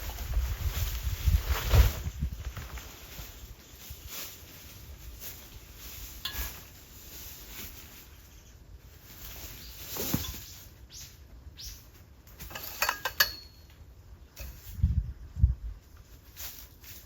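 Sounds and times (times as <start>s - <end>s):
objects knocking and clinking: 12.4s - 13.8s.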